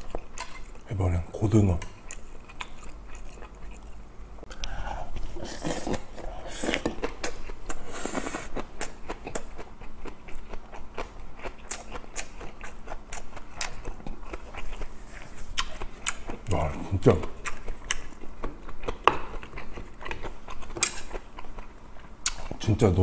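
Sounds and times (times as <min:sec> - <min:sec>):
person chewing food: 0:00.0 - 0:00.9, 0:01.8 - 0:22.6
wet mouth clicks and smacks: 0:15.6 - 0:16.2.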